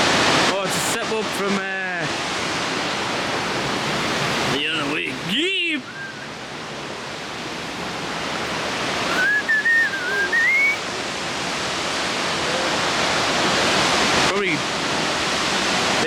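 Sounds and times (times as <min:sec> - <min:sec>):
waterfall rushing: 0:00.0 - 0:16.0
short wavering whistle: 0:05.9 - 0:06.3, 0:09.0 - 0:10.9.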